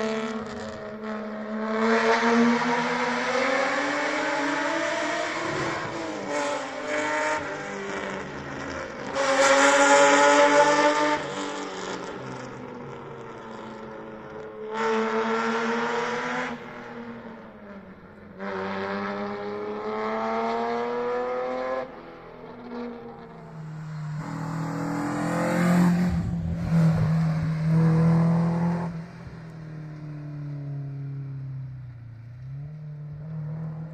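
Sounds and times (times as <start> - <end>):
rally car engine revving: 0.0 - 12.6, 14.7 - 17.1, 18.3 - 22.0, 22.7 - 29.4.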